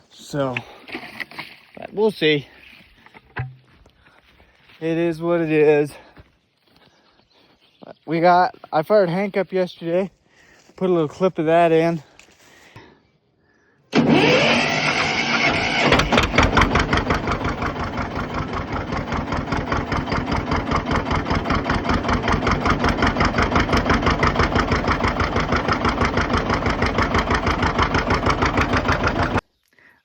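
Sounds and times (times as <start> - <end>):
engine idling: 13.9 - 29.4
engine starter cranking: 13.9 - 29.4.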